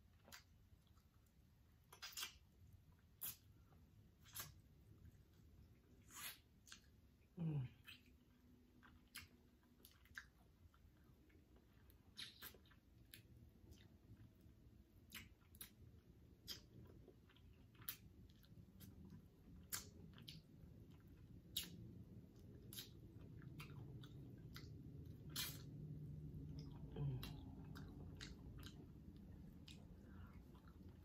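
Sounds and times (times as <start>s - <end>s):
close chewing: 0.0s - 3.6s, 4.2s - 31.0s
mouth clicks and lip smacks: 1.8s - 4.7s, 11.7s - 14.3s, 15.0s - 19.0s, 19.6s - 31.0s.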